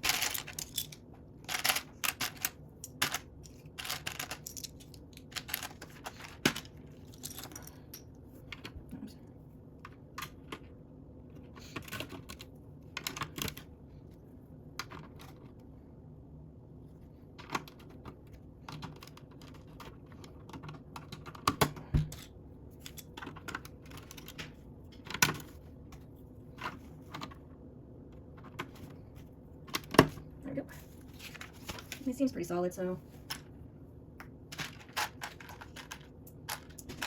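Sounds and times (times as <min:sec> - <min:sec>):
plastic bricks clicking and rattling: 0:00.0 - 0:07.8.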